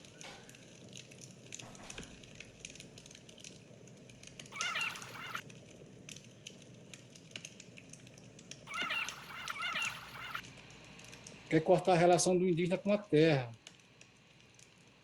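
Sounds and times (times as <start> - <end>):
wavering bird call: 4.5 - 5.4, 8.7 - 10.4.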